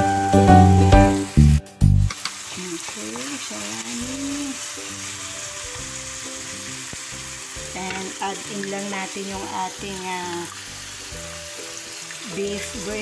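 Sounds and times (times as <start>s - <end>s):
background music: 0.0s - 2.2s, 3.4s - 13.0s
food sizzling in hot oil: 0.0s - 13.0s.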